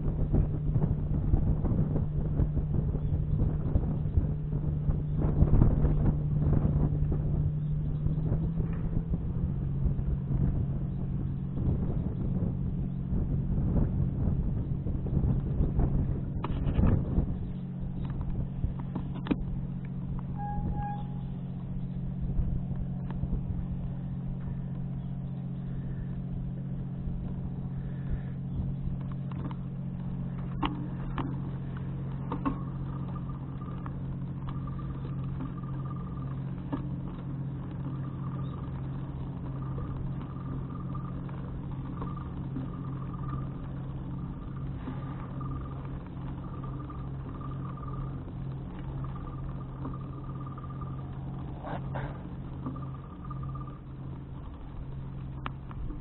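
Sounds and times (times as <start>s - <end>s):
engine humming steadily: 0.0s - 56.0s
short beeps: 20.3s - 21.4s.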